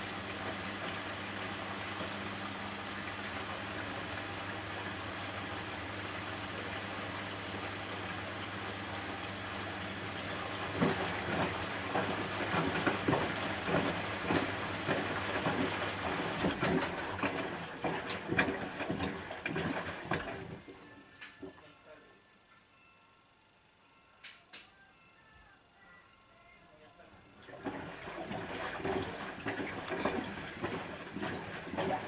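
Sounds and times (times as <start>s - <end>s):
water splashing and sloshing: 0.0s - 20.7s, 27.4s - 32.0s
washing machine humming: 0.0s - 21.7s, 27.2s - 32.0s.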